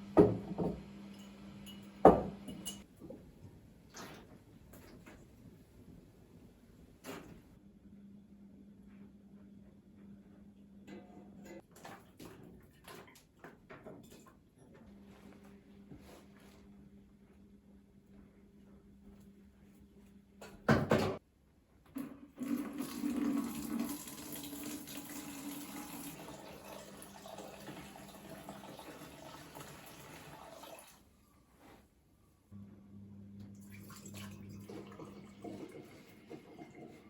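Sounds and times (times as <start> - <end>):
tap water running into sink: 22.3 - 31.0.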